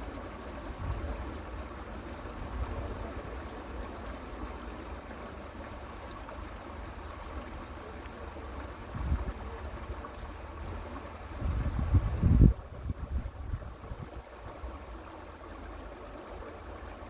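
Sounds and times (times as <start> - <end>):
creek water flowing: 0.0 - 17.0.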